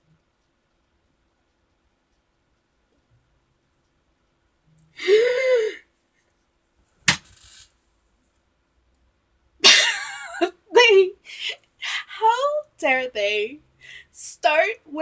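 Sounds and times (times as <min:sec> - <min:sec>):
sharp smack: 0:07.1 - 0:07.4.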